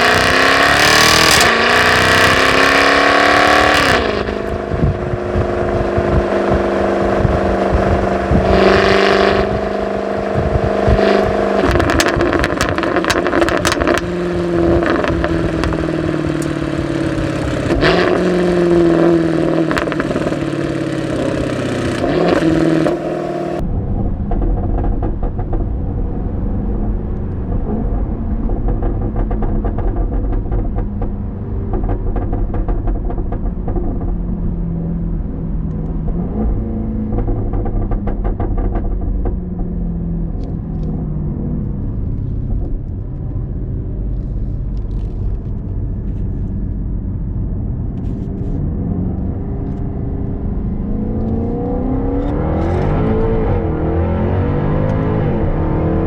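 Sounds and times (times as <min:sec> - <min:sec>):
car engine and exhaust while driving: 0:00.0 - 0:56.0
sharp exhaust cracks: 0:00.0 - 0:56.0.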